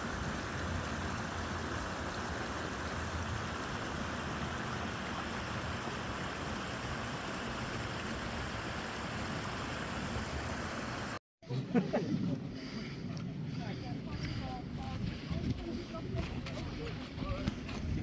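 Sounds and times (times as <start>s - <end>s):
flowing water rushing: 0.0s - 11.2s.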